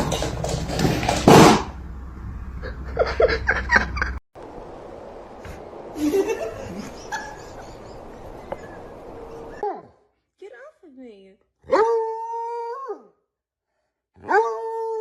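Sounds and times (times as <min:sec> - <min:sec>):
person laughing: 0:02.6 - 0:04.2, 0:06.0 - 0:09.6.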